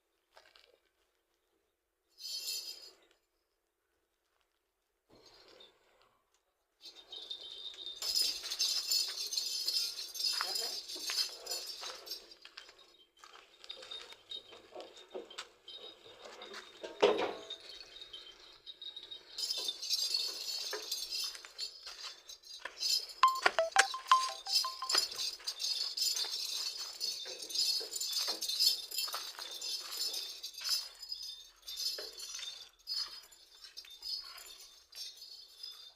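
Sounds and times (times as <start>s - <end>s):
small metal bells jingling: 2.2s - 2.9s, 6.8s - 35.9s.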